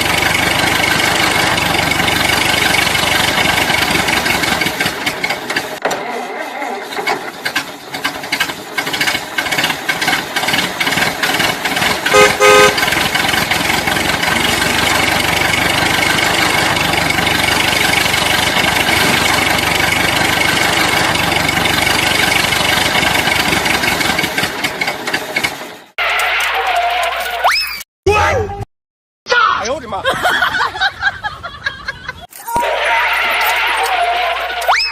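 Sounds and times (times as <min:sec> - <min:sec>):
engine running: 0:00.0 - 0:25.9, 0:33.0 - 0:34.8
vehicle horn beeps: 0:12.1 - 0:12.9.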